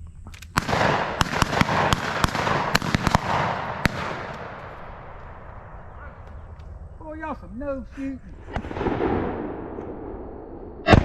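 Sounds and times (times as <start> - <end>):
shotgun shots echoing: 0.5 - 6.6, 8.5 - 11.0.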